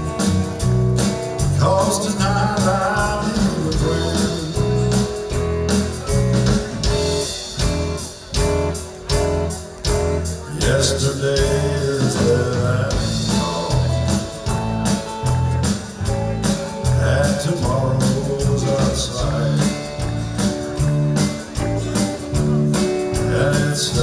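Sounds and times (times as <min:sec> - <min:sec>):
live country band music: 0:00.0 - 0:24.0.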